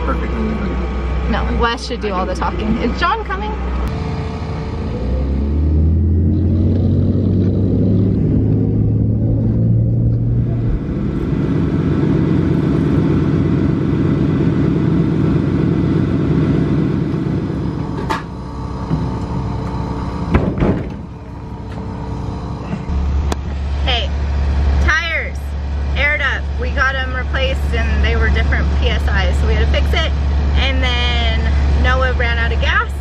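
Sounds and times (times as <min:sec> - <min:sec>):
car engine running: 0:00.0 - 0:33.0
sharp knocks: 0:20.3 - 0:21.1.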